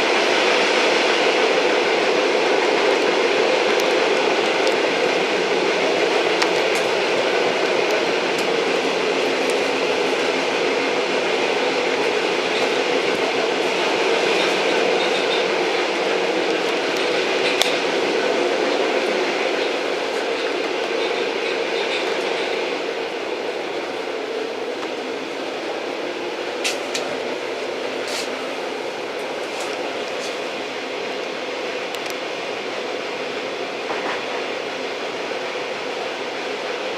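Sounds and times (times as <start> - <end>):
train rumbling along track: 0.0 - 36.9
sharp click of train: 2.8 - 5.2, 6.2 - 10.3, 12.0 - 18.0, 19.6 - 22.8, 26.6 - 27.3, 28.0 - 28.4, 29.2 - 32.3, 33.8 - 34.6.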